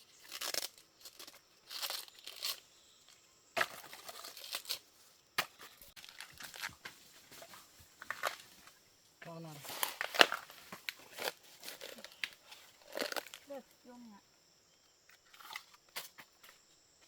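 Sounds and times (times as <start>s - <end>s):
tearing and crinkling: 0.0s - 2.6s, 3.7s - 4.9s, 9.6s - 13.5s.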